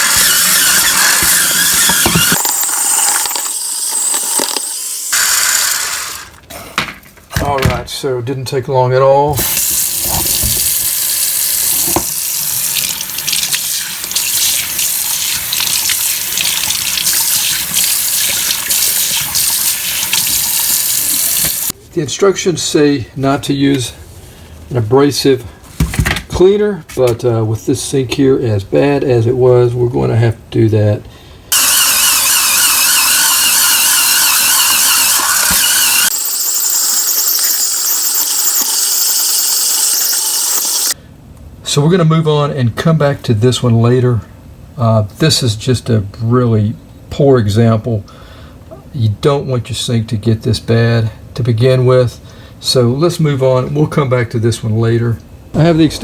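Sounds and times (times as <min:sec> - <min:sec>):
water running from faucet: 0:09.4 - 0:21.7
spin scrub brush scrubbing sink: 0:13.2 - 0:21.7.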